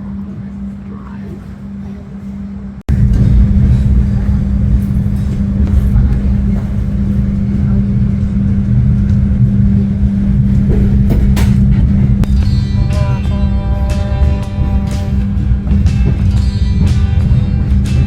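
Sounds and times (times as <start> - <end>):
low hum: 0.0 - 18.0
train rumbling from inside: 0.0 - 18.0.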